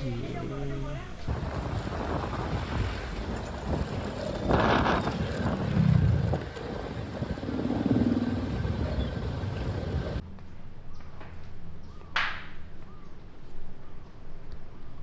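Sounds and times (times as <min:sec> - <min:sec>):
road noise rumble: 0:01.1 - 0:10.2
wind buffeting microphone: 0:01.2 - 0:10.2
motor scooter engine: 0:01.3 - 0:10.2.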